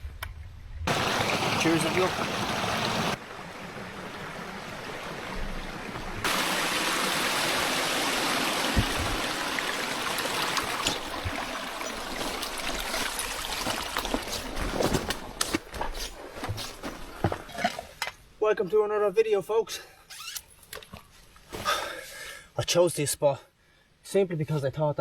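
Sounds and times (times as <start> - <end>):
running water: 0.9 - 18.1.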